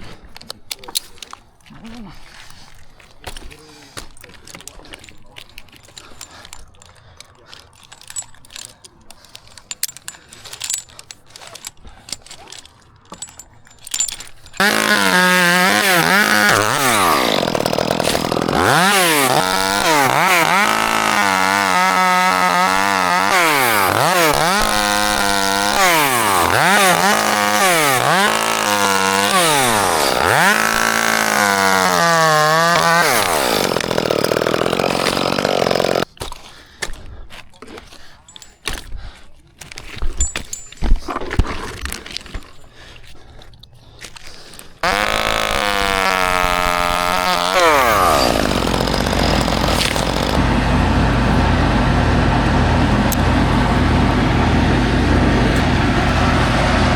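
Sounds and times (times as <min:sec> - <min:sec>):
chainsaw revving: 0:14.6 - 0:36.1, 0:44.8 - 0:56.9.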